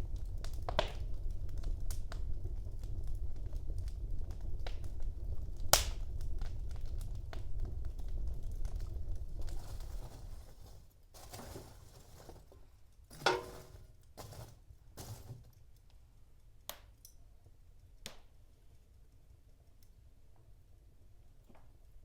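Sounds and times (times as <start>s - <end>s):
wood fire crackling: 0.0s - 22.0s
wood popping and snapping: 9.4s - 15.6s.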